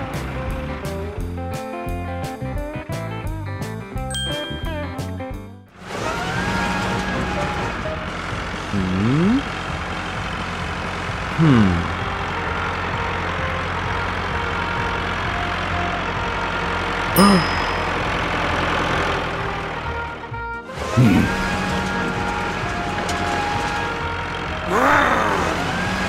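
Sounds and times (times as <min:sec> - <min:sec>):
cartoon tractor engine idling: 0:05.8 - 0:26.0
wordless voice-like sounds: 0:17.2 - 0:17.6, 0:24.7 - 0:25.6.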